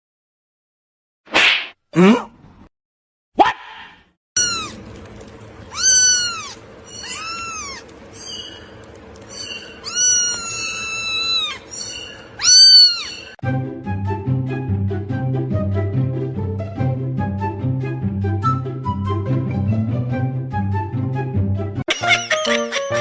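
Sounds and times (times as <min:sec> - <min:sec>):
cat meowing: 0:04.4 - 0:04.8, 0:05.7 - 0:07.9, 0:09.4 - 0:13.4
low background hum: 0:04.4 - 0:13.4.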